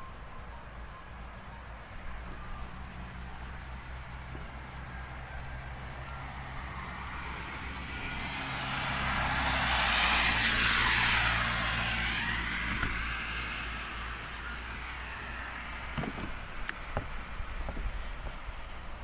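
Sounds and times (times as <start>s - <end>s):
car passing by: 2.2s - 16.0s.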